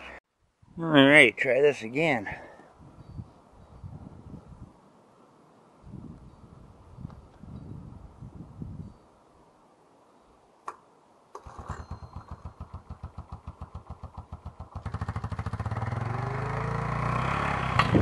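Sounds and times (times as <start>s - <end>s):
starter cranking engine: 11.4s - 16.3s
engine running and revving: 11.6s - 18.0s.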